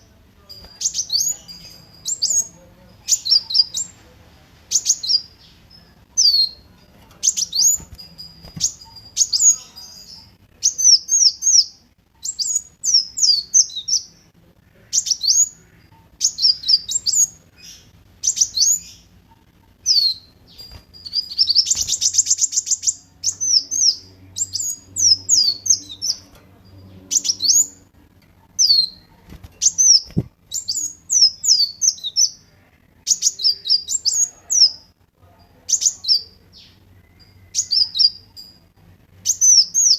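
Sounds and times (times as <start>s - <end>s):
sunbird high-pitched chirps: 0.0s - 4.0s, 4.7s - 34.9s, 35.5s - 39.9s
bird buzzy trill: 15.0s - 32.4s.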